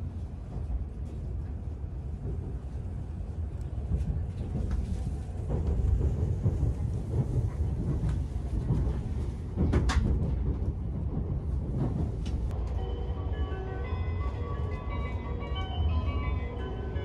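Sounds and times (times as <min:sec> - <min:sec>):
train cabin rumble: 0:00.0 - 0:17.0
background music: 0:12.6 - 0:17.0.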